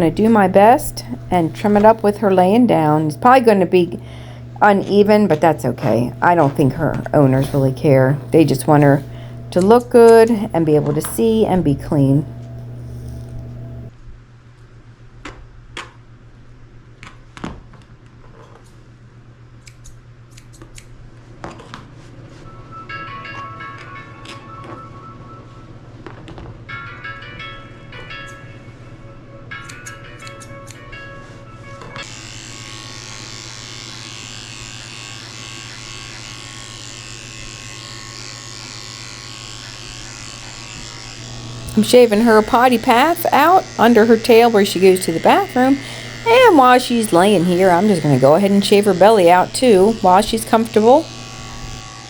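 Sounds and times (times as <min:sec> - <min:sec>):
electric clippers running: 0:00.0 - 0:13.9, 0:31.8 - 0:52.0
steady low hum: 0:00.0 - 0:13.9, 0:40.9 - 0:52.0
scissors snipping hair: 0:40.8 - 0:51.8.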